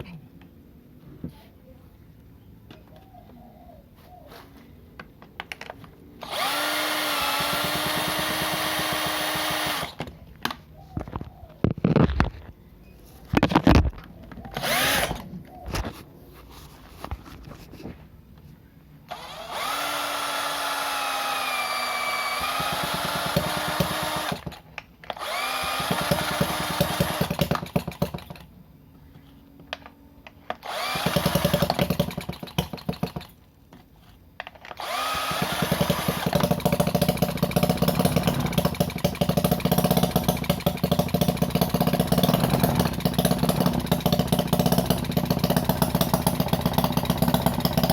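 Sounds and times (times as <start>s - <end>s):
small engine running: 6.2s - 10.0s, 14.6s - 15.2s, 19.1s - 24.6s, 25.2s - 28.2s, 30.7s - 33.2s, 34.8s - 47.9s.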